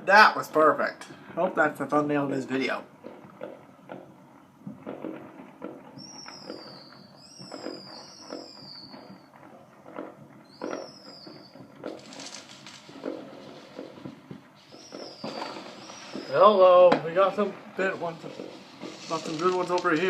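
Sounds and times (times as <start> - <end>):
fireworks popping and banging: 0.0 - 20.0
firework whistles falling in pitch: 5.9 - 9.4, 10.4 - 14.0, 14.6 - 16.9, 18.0 - 20.0.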